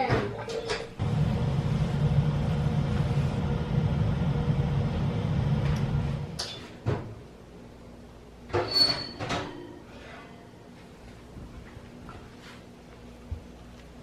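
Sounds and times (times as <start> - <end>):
oven humming: 0.0 - 14.0.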